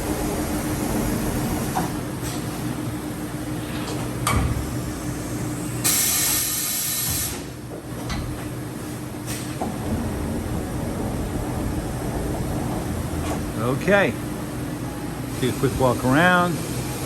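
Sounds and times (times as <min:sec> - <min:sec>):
machine humming: 0:08.4 - 0:17.0.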